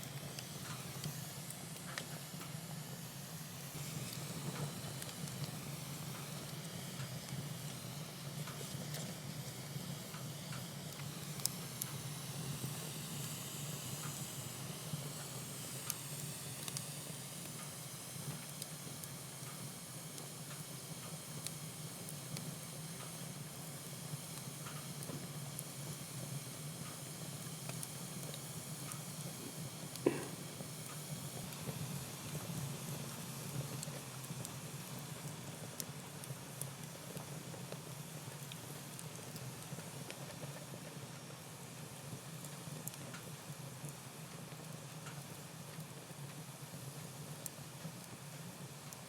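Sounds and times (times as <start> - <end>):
fire crackles: 0.0 - 49.0
wood fire hissing: 0.0 - 49.0.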